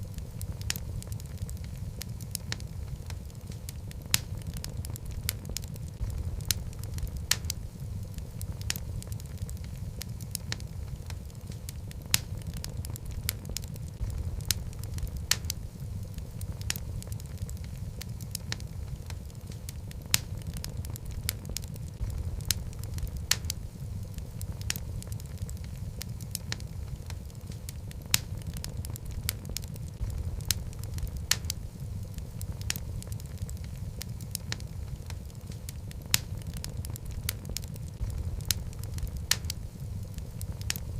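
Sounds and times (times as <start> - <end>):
fire flames rumbling: 0.0 - 40.9
wood crackling and popping: 0.0 - 40.9.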